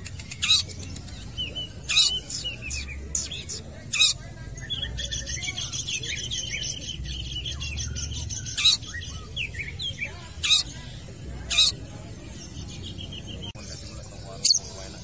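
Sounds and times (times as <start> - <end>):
loud sharp bird calls: 0.0 - 15.0
bird chirping and whistling: 0.2 - 3.6.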